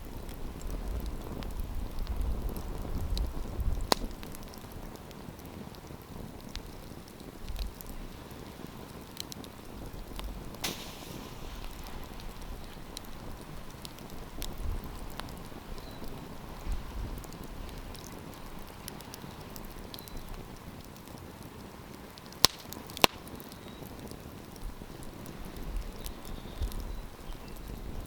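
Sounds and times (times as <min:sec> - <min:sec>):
campfire crackling: 0:00.0 - 0:28.0
fire hiss: 0:00.0 - 0:28.0.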